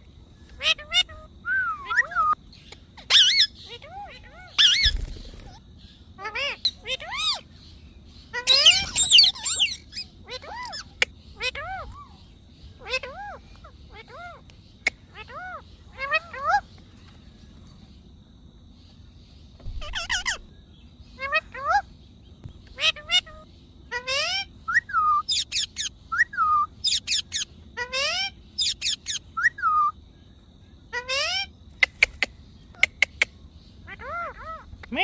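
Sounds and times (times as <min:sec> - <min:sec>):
parrot squawks and whistles: 0:00.6 - 0:02.4, 0:03.0 - 0:05.6, 0:08.3 - 0:12.1, 0:22.8 - 0:30.0.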